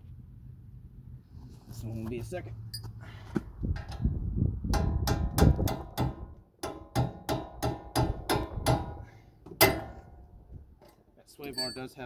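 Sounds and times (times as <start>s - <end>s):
hammer striking metal: 4.7s - 10.3s.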